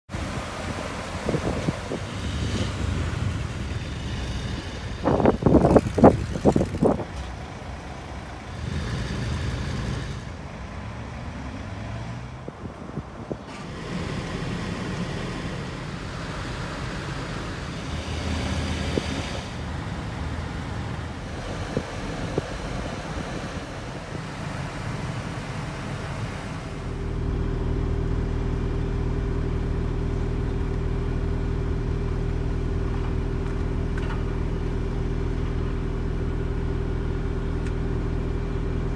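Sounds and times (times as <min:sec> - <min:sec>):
engine exhaust rumble: 0:00.1 - 0:38.9.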